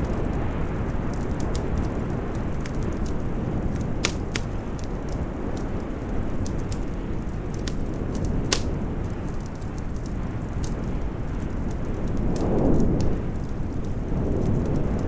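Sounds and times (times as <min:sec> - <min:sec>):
storm wind rushing: 0:00.0 - 0:15.0
wood fire crackling and popping: 0:00.0 - 0:15.0.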